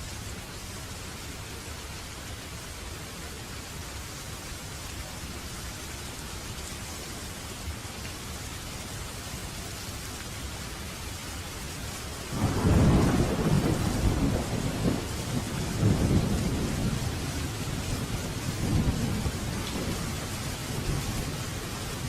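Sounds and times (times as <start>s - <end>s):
steady rain: 0.0s - 22.0s
thunder rumbling: 12.3s - 22.0s.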